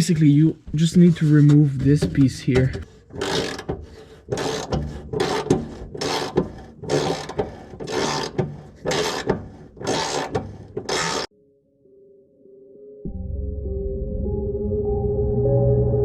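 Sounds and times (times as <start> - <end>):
ratchet wrench clicking: 3.2 - 11.3.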